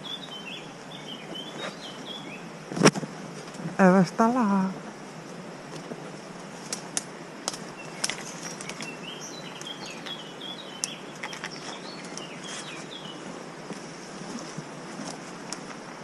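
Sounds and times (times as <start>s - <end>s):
songbird chirping: 0.0s - 2.8s, 7.4s - 14.5s
steady rushing hiss: 0.0s - 16.0s.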